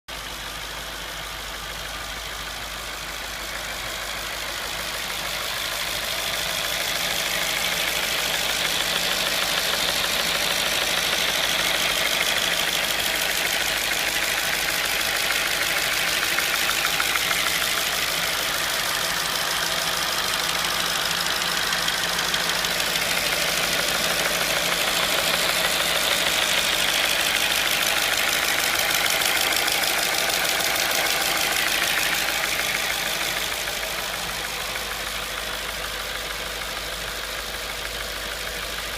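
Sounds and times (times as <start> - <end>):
car engine idling: 0.0 - 38.9
fast even clicking rattle: 6.2 - 38.9.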